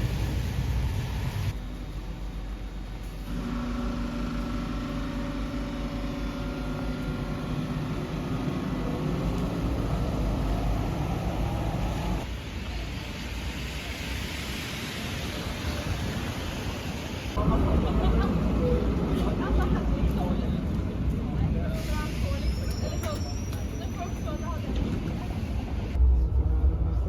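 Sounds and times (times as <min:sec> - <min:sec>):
vehicle engine hum with whine: 0:00.0 - 0:12.3.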